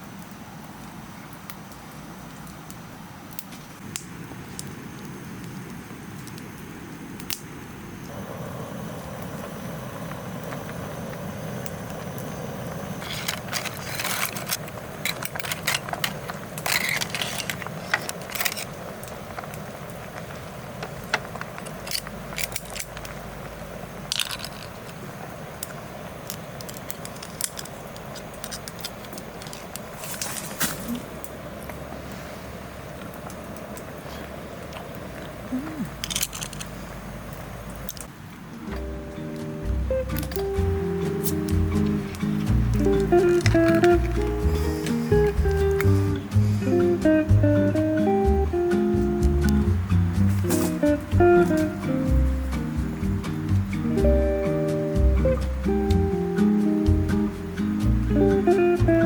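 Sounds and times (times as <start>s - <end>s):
steady low hiss: 0.0s - 59.0s
handling clicks and clinks: 12.9s - 18.9s, 20.8s - 23.1s, 24.1s - 25.0s, 26.6s - 31.0s, 35.9s - 36.8s, 40.1s - 46.1s.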